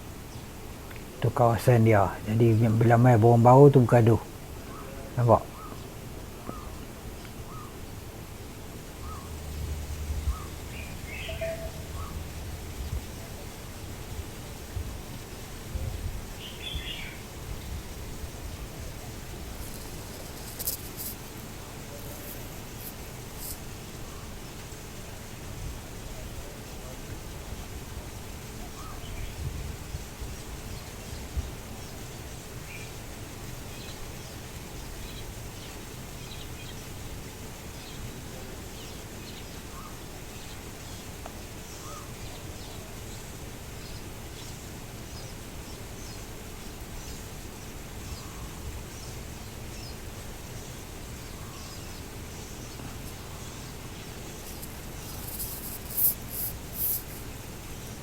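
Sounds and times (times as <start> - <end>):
outdoor background hiss: 0.0 - 58.0
faint bird chirps: 4.6 - 7.8, 9.0 - 9.4, 10.2 - 12.2, 16.4 - 17.2, 21.9 - 24.4, 48.0 - 50.0, 50.6 - 57.2
sharp high hissing bursts: 53.1 - 58.0.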